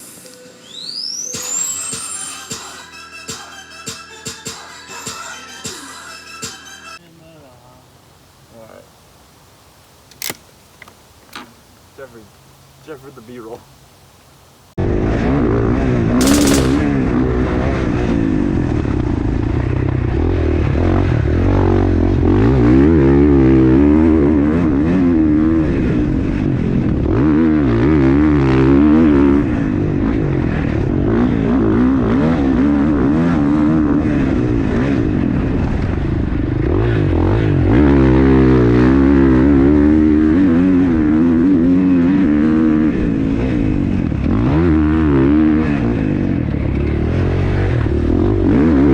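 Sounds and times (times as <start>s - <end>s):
dirt bike engine revving: 14.8s - 48.9s.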